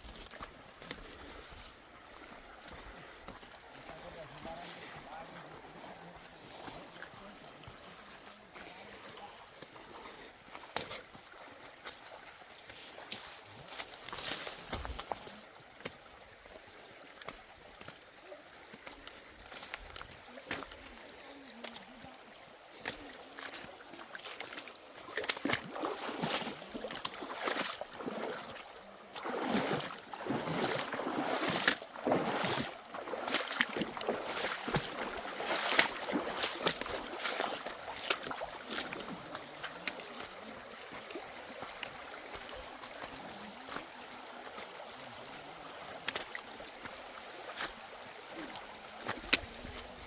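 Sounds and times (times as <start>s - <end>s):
footsteps on rocky trail: 0.0s - 16.1s, 18.8s - 21.8s, 29.5s - 44.2s
running water: 0.0s - 50.0s.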